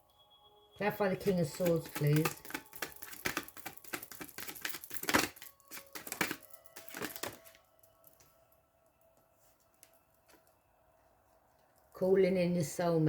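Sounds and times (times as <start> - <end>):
faint background music: 0.0 - 13.0
cards being shuffled: 1.1 - 7.6.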